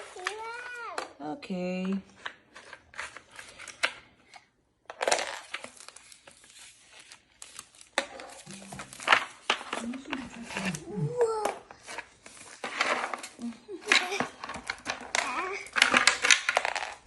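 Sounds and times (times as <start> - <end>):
plastic wrapping crinkling: 5.0 - 17.0.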